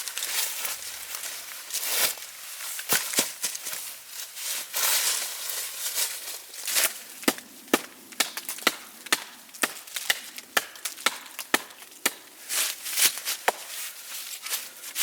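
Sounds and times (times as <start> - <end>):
wood being chopped: 6.8 - 12.3, 13.0 - 13.7.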